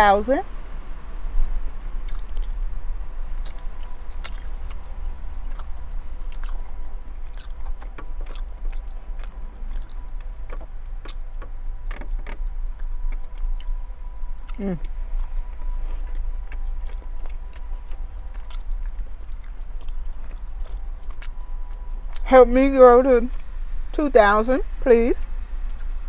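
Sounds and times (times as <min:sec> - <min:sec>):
steady low hum: 0:00.0 - 0:26.0
close-up chewing: 0:00.8 - 0:22.3, 0:25.7 - 0:26.0
wet mouth clicks: 0:01.4 - 0:02.6.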